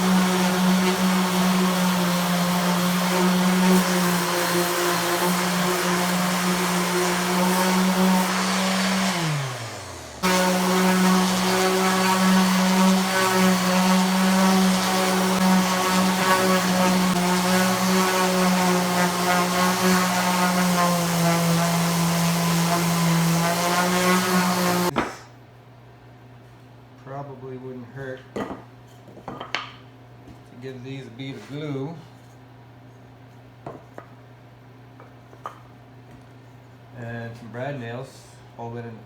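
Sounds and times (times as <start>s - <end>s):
electric sander on wood: 0.0s - 25.0s.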